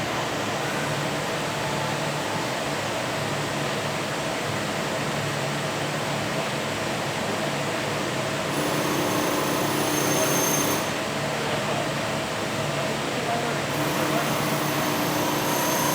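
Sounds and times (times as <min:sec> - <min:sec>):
thin high whine: 0:08.7 - 0:11.1, 0:13.8 - 0:15.9.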